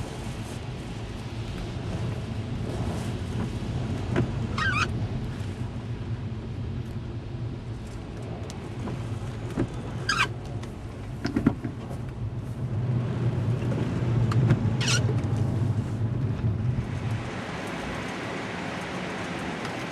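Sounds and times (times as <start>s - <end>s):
car engine rumbling: 0.0s - 19.9s
storm wind: 0.0s - 19.9s
high wavering squeaks: 4.5s - 4.9s, 10.0s - 10.3s.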